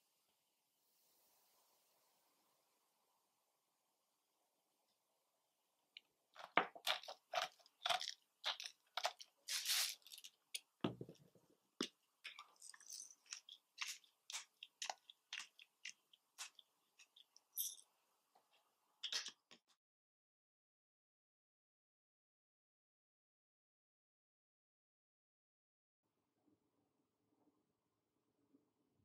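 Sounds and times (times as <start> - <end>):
salt and pepper crunching: 6.4 - 10.7, 11.8 - 17.8.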